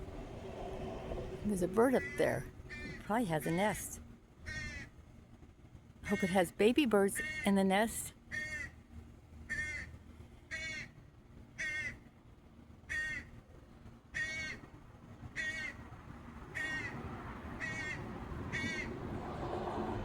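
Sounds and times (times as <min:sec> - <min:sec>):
bird calling: 0:01.2 - 0:03.9.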